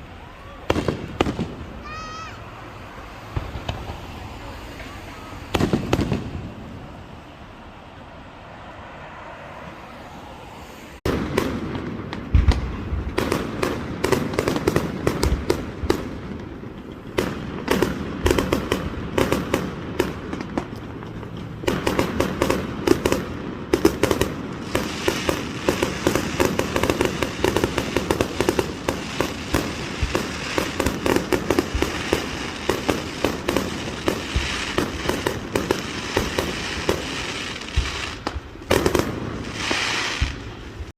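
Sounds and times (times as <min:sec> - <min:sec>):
fireworks crackling pops: 0:00.0 - 0:07.0, 0:11.0 - 0:40.9
deep firework booms: 0:05.5 - 0:06.9, 0:11.0 - 0:20.8, 0:21.6 - 0:40.9.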